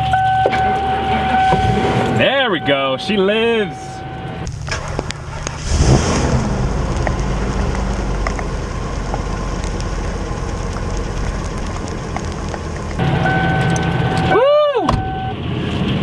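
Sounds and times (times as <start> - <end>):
motorhome engine rumbling idle: 0.0 - 4.6, 8.0 - 16.0.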